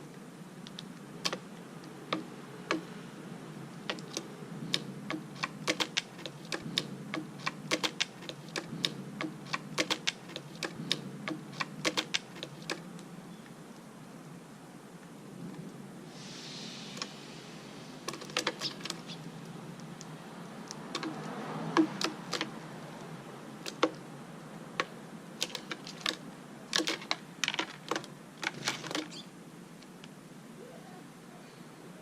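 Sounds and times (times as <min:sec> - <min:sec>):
sharp clicks and taps: 0:02.1 - 0:02.9, 0:03.9 - 0:13.1.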